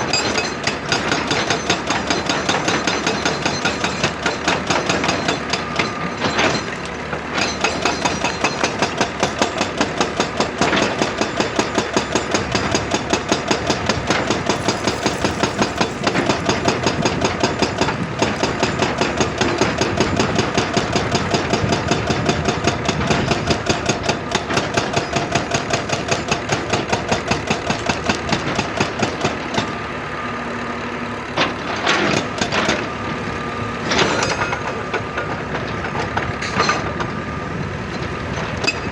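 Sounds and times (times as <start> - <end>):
hydraulic breaker hammering rock: 0.0 - 29.7
diesel engine running: 12.4 - 21.0.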